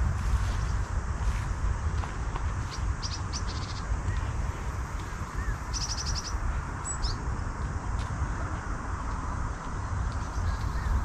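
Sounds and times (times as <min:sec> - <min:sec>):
steady low rumble: 0:00.0 - 0:11.0
small birds chirping: 0:02.5 - 0:11.0.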